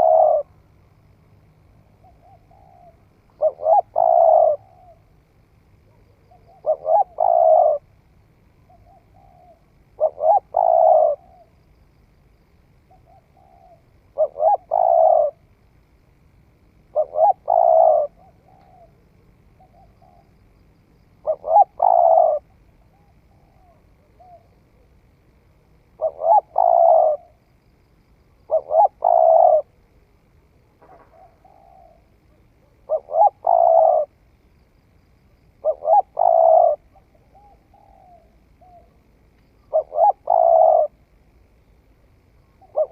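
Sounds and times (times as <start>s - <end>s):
dove cooing: 0.0s - 0.6s, 2.0s - 5.2s, 5.9s - 7.9s, 8.7s - 11.6s, 12.9s - 15.5s, 16.9s - 20.5s, 21.2s - 25.0s, 25.9s - 27.4s, 28.4s - 29.8s, 30.8s - 34.2s, 35.6s - 41.0s, 42.4s - 42.9s.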